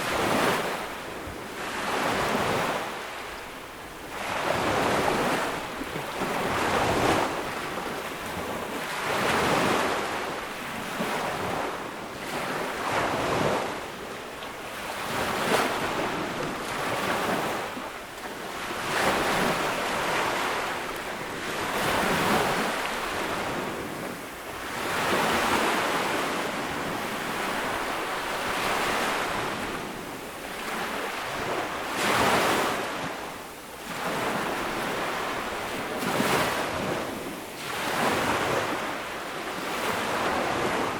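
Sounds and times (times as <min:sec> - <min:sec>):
ocean waves breaking on beach: 0:00.0 - 0:40.9.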